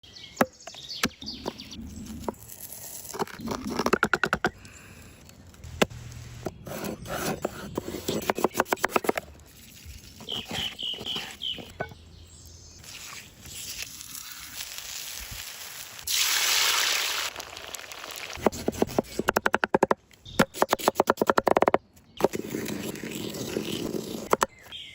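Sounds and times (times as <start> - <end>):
food sizzling in oil: 12.8 - 18.4.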